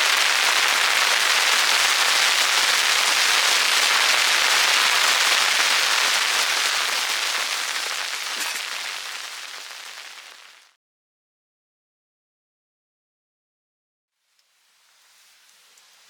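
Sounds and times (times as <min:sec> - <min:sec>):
heavy rain: 0:00.0 - 0:10.7.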